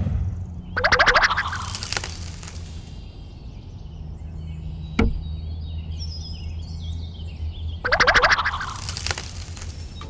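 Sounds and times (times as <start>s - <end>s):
faint high chirps: 0.7s - 3.1s, 7.8s - 10.0s.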